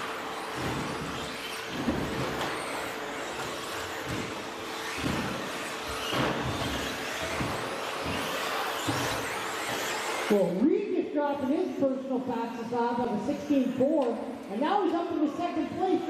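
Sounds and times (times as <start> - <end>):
electric motors and tyres hissing: 0.0 - 10.6.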